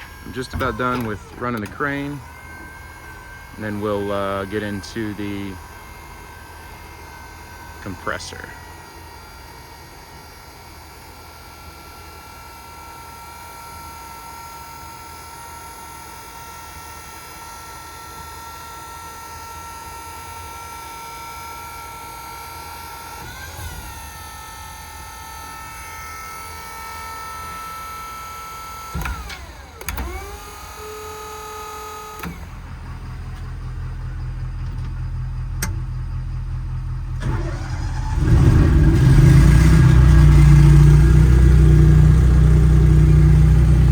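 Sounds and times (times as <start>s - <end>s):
engine droning: 0.0s - 10.1s, 32.1s - 43.9s
hydraulic pump whining: 0.0s - 43.9s.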